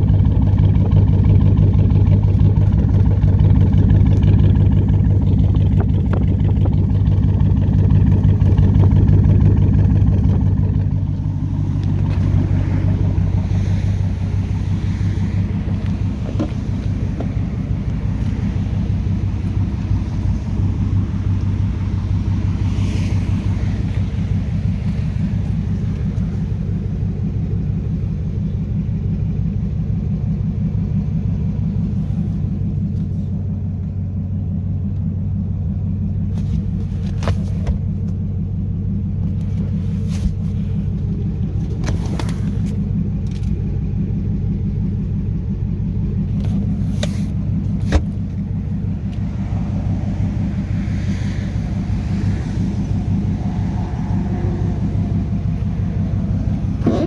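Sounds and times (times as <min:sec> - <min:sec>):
vee eight engine idling rumble: 0:00.0 - 0:57.0.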